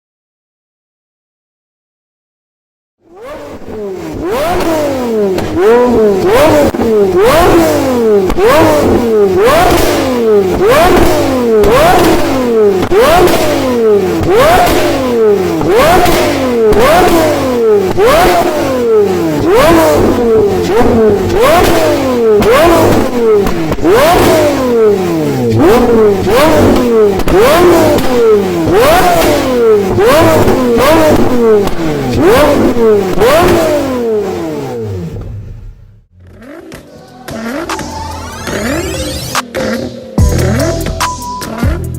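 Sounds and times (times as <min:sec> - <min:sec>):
engine revving: 0:03.0 - 0:41.9.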